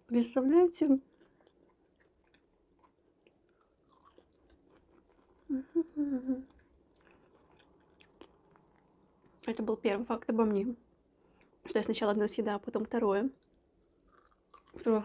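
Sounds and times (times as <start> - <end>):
chewing fries: 0.2 - 9.6, 13.3 - 15.0
woman humming mm: 5.5 - 6.5.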